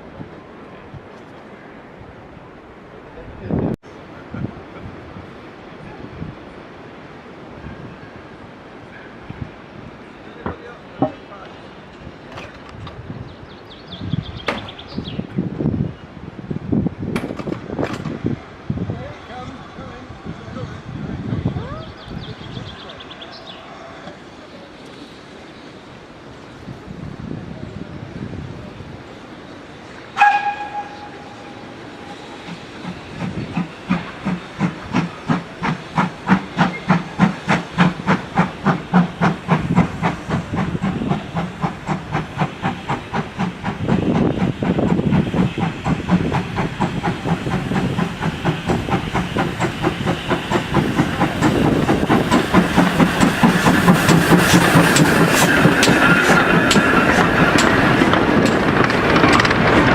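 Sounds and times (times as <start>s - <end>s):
train running noise: 0.0s - 59.9s
steam locomotive whistle: 30.2s - 31.6s
locomotive exhaust chuffs: 32.4s - 59.9s.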